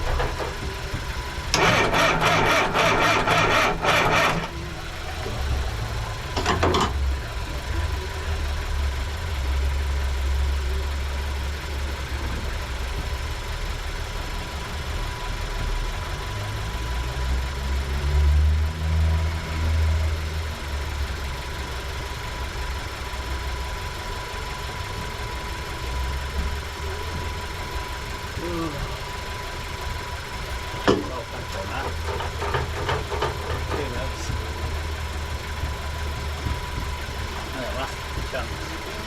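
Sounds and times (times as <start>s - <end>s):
low engine rumble: 0.0s - 39.0s
engine cranking on starter motor: 1.4s - 5.6s, 30.9s - 39.0s.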